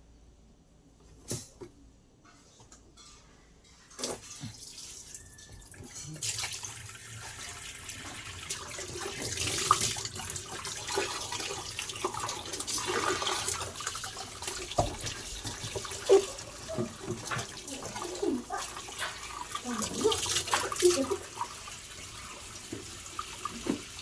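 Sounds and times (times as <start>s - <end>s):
water running and splashing: 5.8s - 24.0s.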